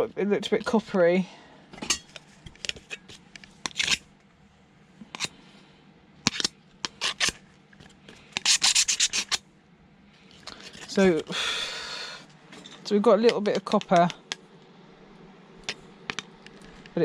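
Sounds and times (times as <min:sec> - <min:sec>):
hand tool scratching fibre board: 0:08.4 - 0:09.4.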